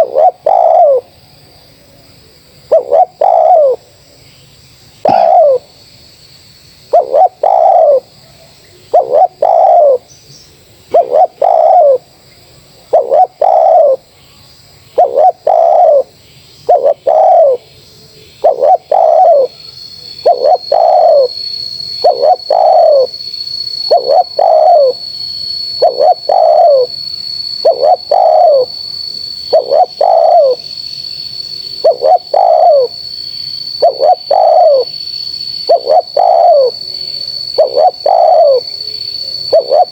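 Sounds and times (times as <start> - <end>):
dove cooing: 0.0 - 1.1, 2.7 - 3.8, 5.0 - 5.7, 6.9 - 8.1, 8.9 - 10.1, 10.9 - 12.0, 12.9 - 14.0, 14.9 - 16.1, 16.7 - 17.7, 18.4 - 19.6, 20.2 - 21.4, 22.0 - 23.2, 23.9 - 25.0, 25.8 - 27.0, 27.6 - 28.8, 29.5 - 30.6, 31.8 - 33.0, 33.8 - 34.9, 35.7 - 39.9
faint high-pitched whine: 0.0 - 39.9.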